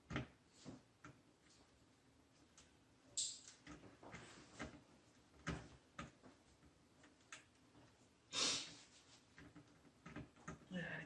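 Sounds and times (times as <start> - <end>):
short hiss: 8.3 - 8.9.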